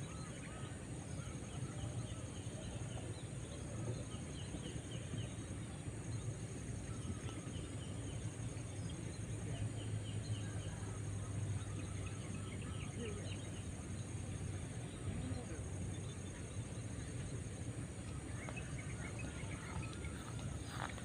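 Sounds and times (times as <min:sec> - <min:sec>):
insect drone: 0:00.0 - 0:21.0
low steady rumble: 0:00.0 - 0:21.0
birds chirping: 0:01.2 - 0:21.0.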